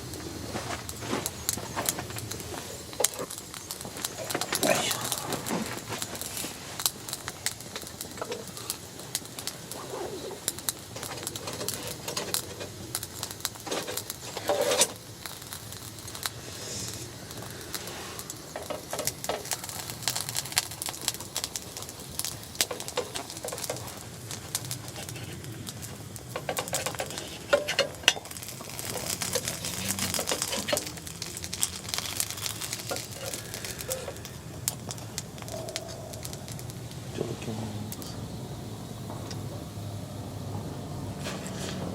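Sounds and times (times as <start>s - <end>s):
small fire crackling and popping: 0.0s - 41.9s.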